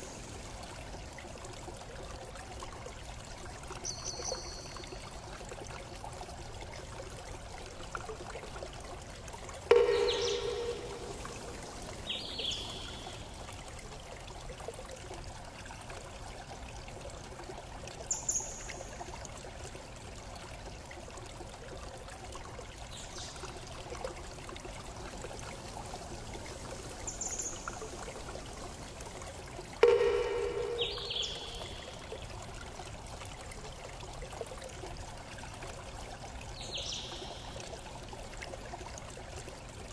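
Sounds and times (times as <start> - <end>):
flowing stream water: 0.0 - 39.9
high-pitched chirps: 9.7 - 12.9, 29.8 - 32.0.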